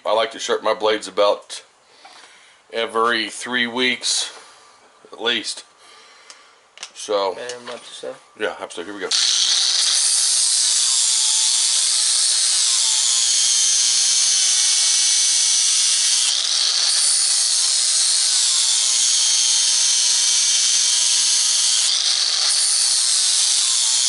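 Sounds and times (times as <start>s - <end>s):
power grinder grinding metal: 9.1s - 24.0s.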